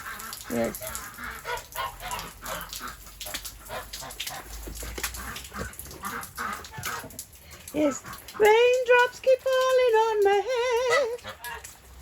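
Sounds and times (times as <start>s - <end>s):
ducks quacking: 0.0s - 7.2s.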